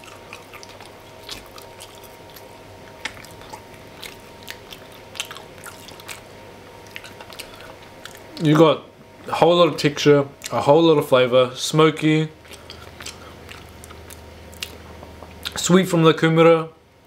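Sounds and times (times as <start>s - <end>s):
wet mouth clicks and smacks: 0.0s - 8.2s, 12.4s - 15.6s
person chewing food: 0.0s - 8.5s, 12.4s - 15.6s
faint steady hum: 0.0s - 17.0s.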